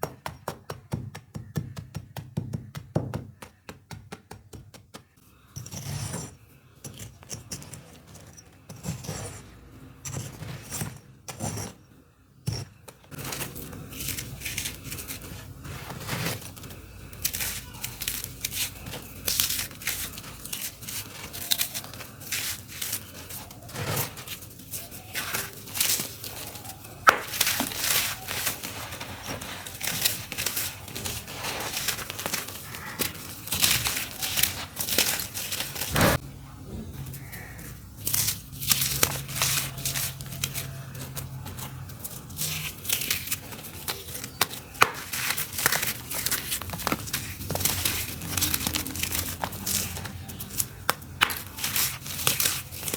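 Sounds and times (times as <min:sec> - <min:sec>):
dirt clumps crunching by hand: 0:13.1 - 0:36.2.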